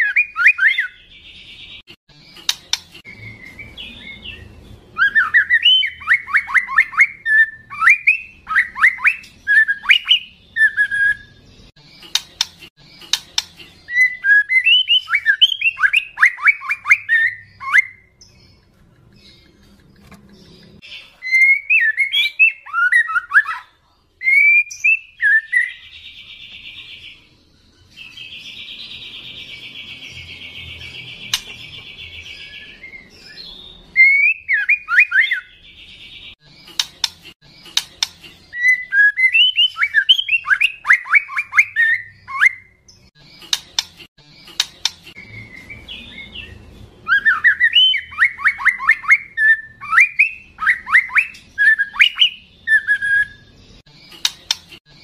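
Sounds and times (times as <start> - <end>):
bird whistled song phrases: 0.0 - 1.0, 5.0 - 11.4, 13.9 - 18.2, 21.2 - 26.7, 32.1 - 35.6, 38.5 - 42.8, 45.2 - 53.5
bird sharp clicks: 12.0 - 13.6, 31.3 - 31.6, 36.7 - 38.2, 54.1 - 54.8.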